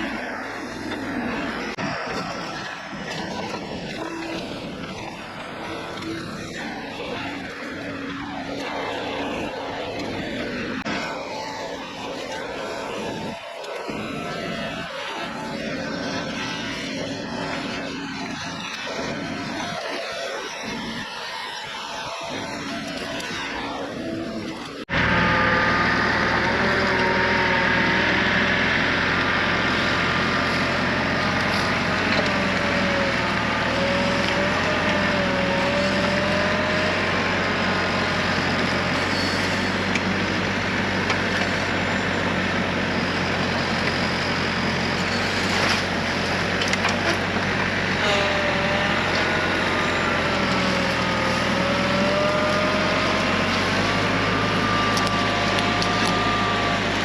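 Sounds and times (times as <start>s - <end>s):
excavator diesel engine running: 0.0s - 57.0s
wavering hydraulic whine: 0.0s - 57.0s.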